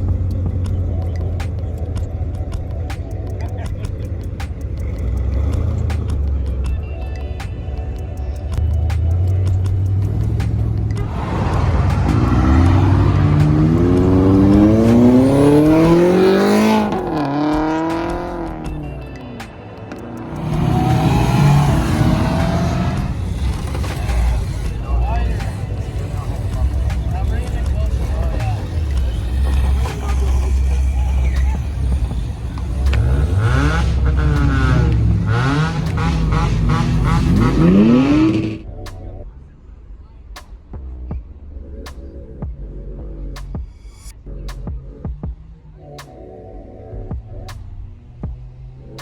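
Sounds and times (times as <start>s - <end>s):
car engine revving: 0.0s - 39.2s.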